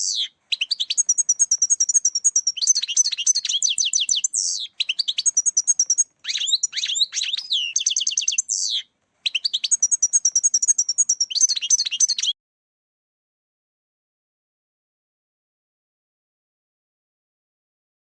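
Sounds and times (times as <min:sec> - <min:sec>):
goldfinch twittering song: 0:00.0 - 0:12.4.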